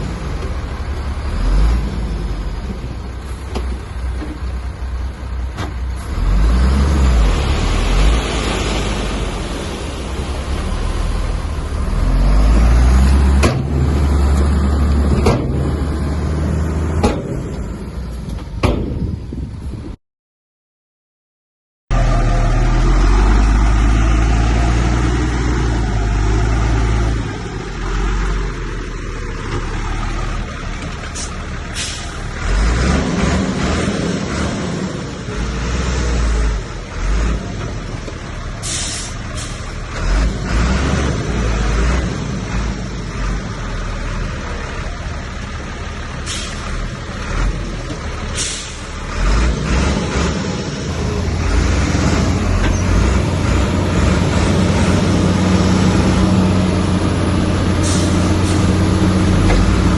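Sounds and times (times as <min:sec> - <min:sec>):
diesel earthmoving machinery rumble: 0:00.0 - 0:20.0, 0:21.9 - 0:59.9
air brakes hissing: 0:31.2 - 0:32.2, 0:38.6 - 0:39.7, 0:46.2 - 0:46.7, 0:48.3 - 0:49.0, 0:57.8 - 0:58.8.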